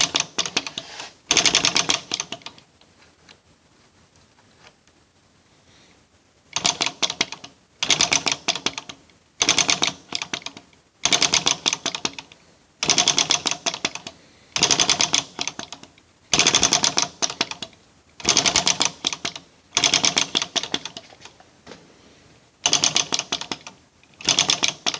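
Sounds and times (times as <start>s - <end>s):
model engine clattering: 0.0s - 2.6s, 6.6s - 21.3s, 22.6s - 24.9s.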